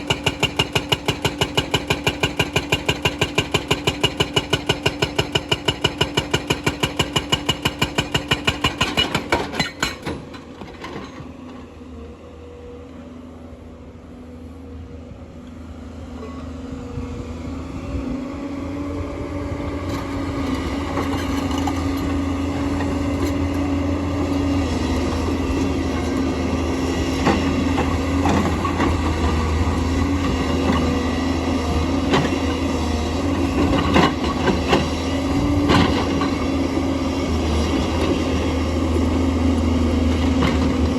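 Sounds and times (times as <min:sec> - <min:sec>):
hydraulic rock breaker hammering: 0:00.0 - 0:10.3.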